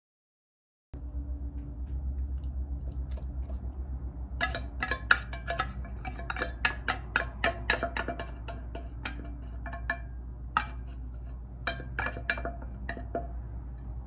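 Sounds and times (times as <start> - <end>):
low steady hum: 1.0 - 14.0
utensil clinking against dish: 4.4 - 14.0.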